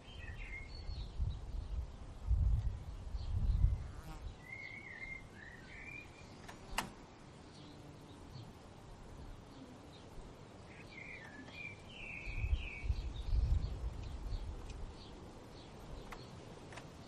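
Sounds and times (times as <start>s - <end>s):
faint bird chirps: 0.0s - 1.8s, 2.8s - 6.8s, 9.2s - 16.4s.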